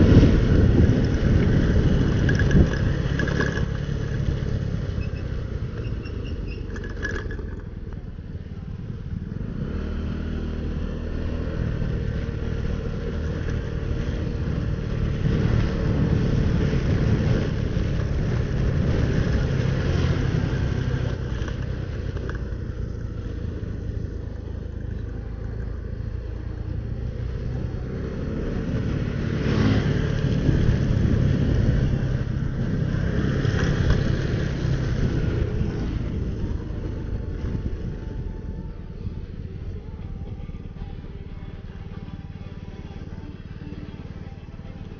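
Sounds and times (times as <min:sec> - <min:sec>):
wind rush: 0:00.0 - 0:03.2
motorcycle engine revving: 0:00.0 - 0:44.9.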